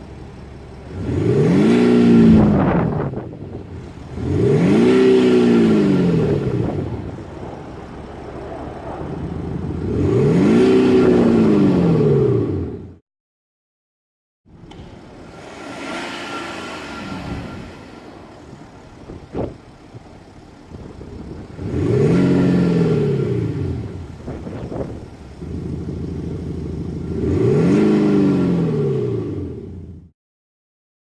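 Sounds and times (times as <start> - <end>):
diesel engine revving: 0.0 - 13.0, 14.5 - 30.1.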